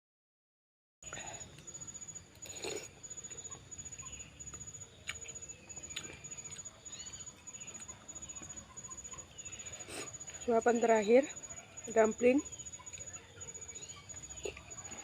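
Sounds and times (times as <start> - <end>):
person chewing: 1.1 - 8.6, 14.2 - 15.0.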